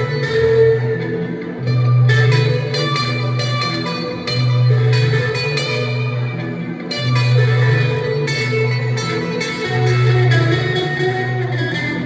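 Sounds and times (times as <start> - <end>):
blues guitar improvisation: 0.0 - 12.0
repeating guitar backing loop: 0.0 - 12.0.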